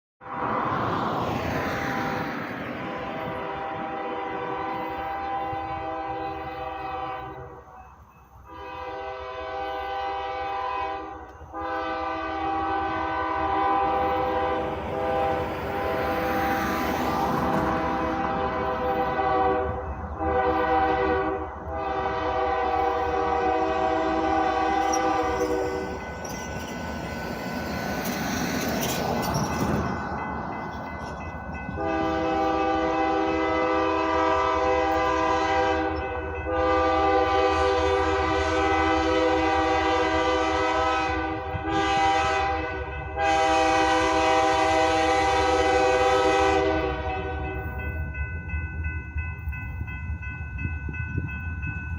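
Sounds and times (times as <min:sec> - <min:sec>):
train passing rumble: 0:00.2 - 0:51.9
locomotive air horn blasts: 0:02.9 - 0:07.8, 0:08.4 - 0:16.3, 0:17.4 - 0:26.1, 0:31.7 - 0:47.6.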